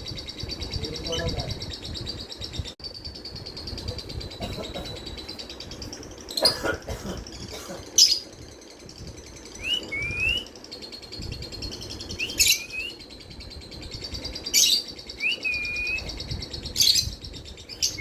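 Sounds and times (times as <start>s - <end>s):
lovebirds chirping: 0.0s - 18.0s
whistled bird notes: 9.5s - 10.6s, 11.8s - 13.2s, 14.0s - 18.0s.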